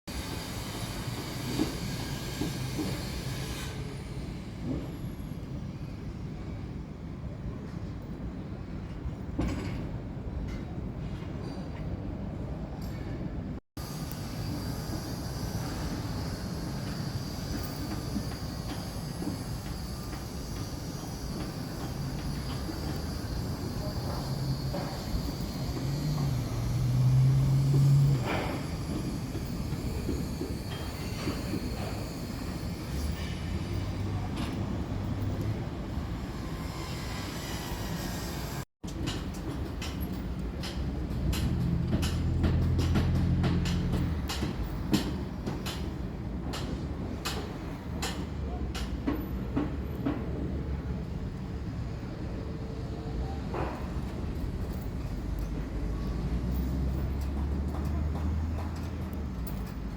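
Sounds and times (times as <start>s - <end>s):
high hiss: 0.1s - 4.4s, 13.8s - 34.7s
heavy machinery rumbling: 14.0s - 36.6s.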